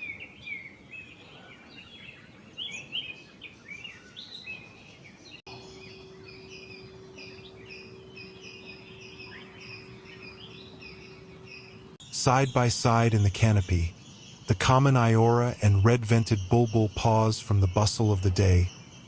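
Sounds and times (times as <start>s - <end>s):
small birds chirping: 0.0s - 19.0s
steady low hum: 5.5s - 19.0s.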